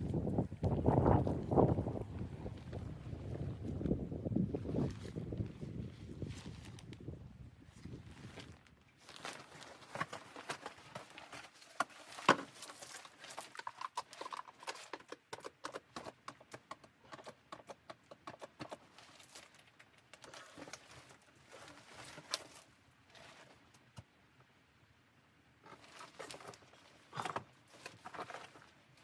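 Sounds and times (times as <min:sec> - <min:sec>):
rapid clicking and knocking: 0:13.5 - 0:19.0.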